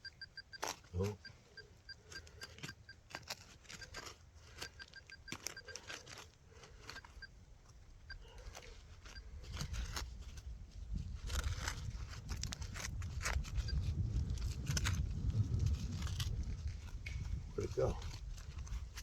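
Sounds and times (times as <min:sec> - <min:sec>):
metal detector beeping: 0:00.0 - 0:07.4, 0:08.0 - 0:10.0, 0:13.6 - 0:13.9
digging in soil: 0:00.0 - 0:19.0.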